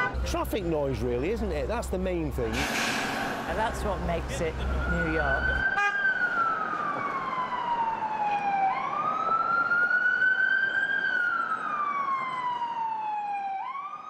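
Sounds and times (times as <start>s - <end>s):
city traffic hiss: 2.4s - 5.6s
emergency vehicle siren wailing: 2.5s - 14.0s.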